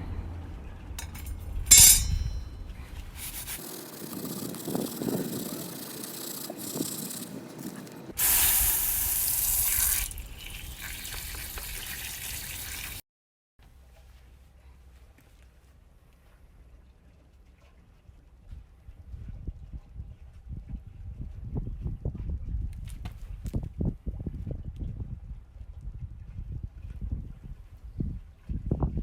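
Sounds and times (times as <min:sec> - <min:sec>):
hissing water spray: 0:03.2 - 0:13.0
water running and spraying: 0:03.2 - 0:13.0.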